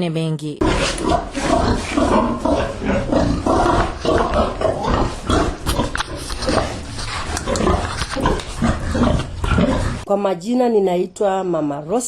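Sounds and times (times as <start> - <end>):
pigs grunting: 0.6 - 10.1.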